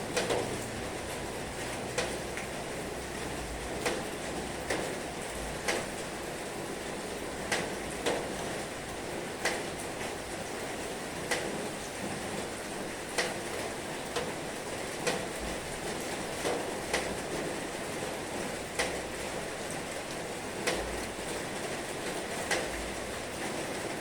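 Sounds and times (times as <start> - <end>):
sharp drip-like taps: 0.1 - 2.6, 3.4 - 5.9, 16.4 - 17.2, 18.7 - 19.0.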